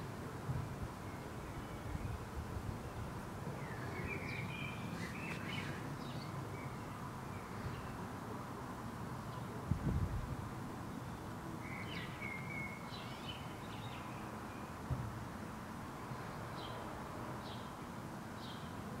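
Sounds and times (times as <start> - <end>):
outdoor background hiss: 0.0 - 19.0
birds chirping: 3.6 - 8.0.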